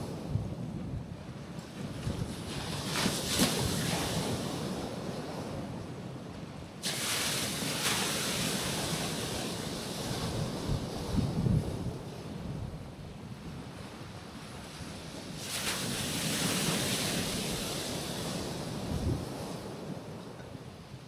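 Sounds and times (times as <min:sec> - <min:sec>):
sea waves washing onto rocks: 0:06.8 - 0:12.0, 0:14.5 - 0:20.2.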